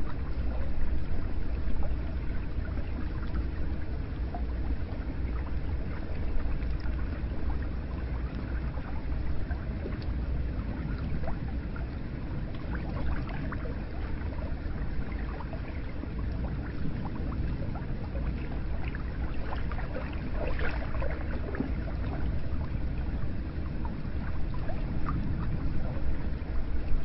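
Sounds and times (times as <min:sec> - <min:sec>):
water drips and splashes: 0:00.0 - 0:27.0
water running and lapping: 0:00.0 - 0:27.0.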